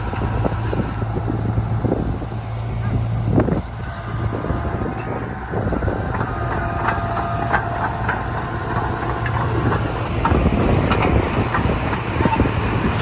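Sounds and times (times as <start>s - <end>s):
bulldozer diesel engine running: 0.0s - 13.0s
running gear clicks and clanks: 5.0s - 13.0s.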